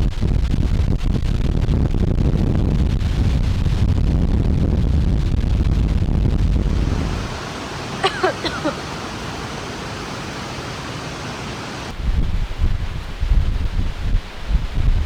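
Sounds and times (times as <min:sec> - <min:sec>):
wind buffeting microphone: 0:00.0 - 0:15.0
heavy rain hissing: 0:06.3 - 0:15.0.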